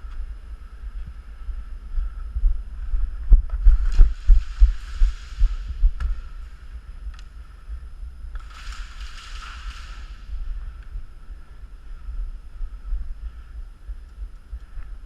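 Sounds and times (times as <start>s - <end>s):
thumping rumble on microphone: 0.9s - 11.4s.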